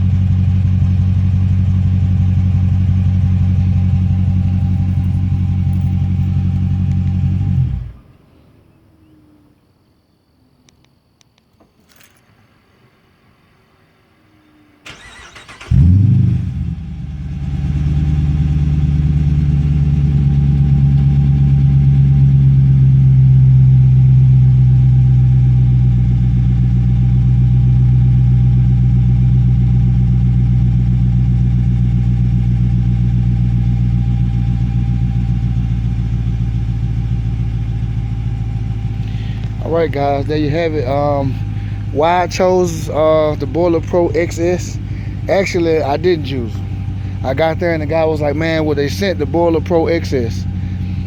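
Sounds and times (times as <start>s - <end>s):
car engine cranking: 0.0s - 8.0s, 14.8s - 21.8s, 32.6s - 51.0s
car engine idling: 0.0s - 9.7s, 11.6s - 51.0s
engine bark on starting: 14.8s - 16.7s.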